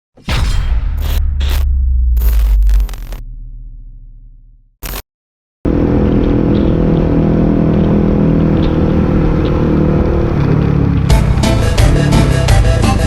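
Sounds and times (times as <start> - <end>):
motorcycle engine running: 5.7 - 13.0
road noise: 5.7 - 13.0.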